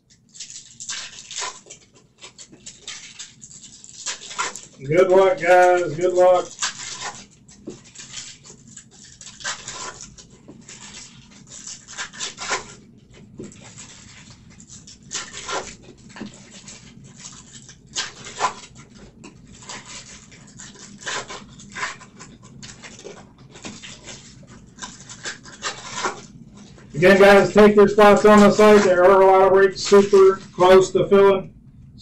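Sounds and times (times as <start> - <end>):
trading cards being handled: 0.1 - 31.4.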